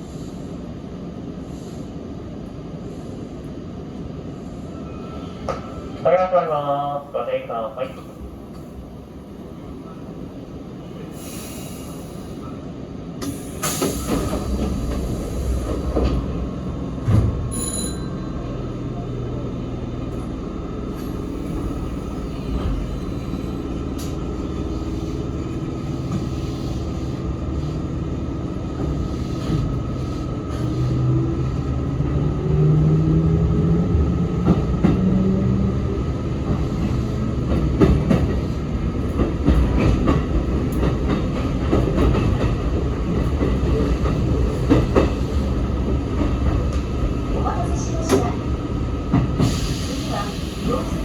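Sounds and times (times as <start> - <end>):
train wheels on rails: 10.8 - 51.0.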